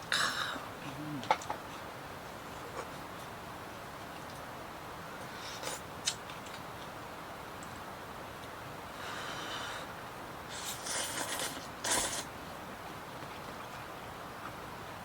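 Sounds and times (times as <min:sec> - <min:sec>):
steady background hiss: 0:00.0 - 0:15.0
person slurping noodle soup: 0:10.5 - 0:12.3.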